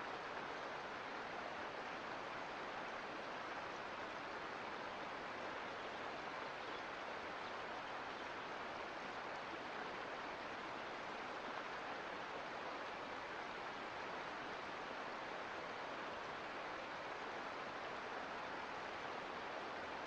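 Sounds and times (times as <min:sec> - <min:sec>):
creek water flowing: 0:00.0 - 0:20.0.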